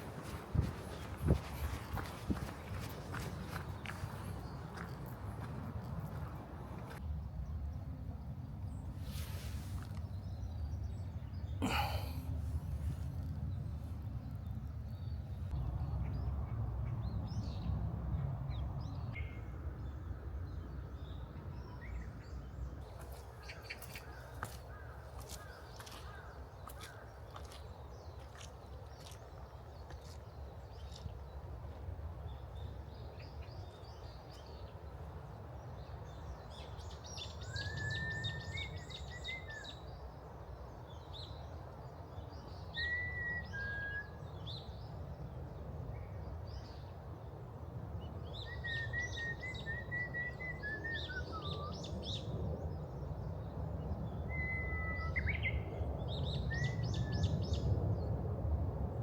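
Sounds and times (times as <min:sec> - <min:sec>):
steady low rumble: 0:09.7 - 0:22.8.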